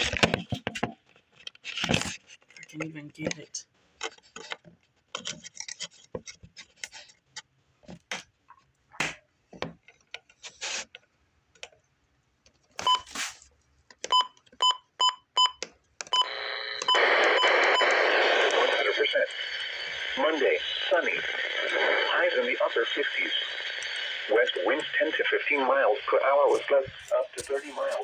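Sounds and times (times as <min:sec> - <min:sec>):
radio static: 0:16.2 - 0:28.0.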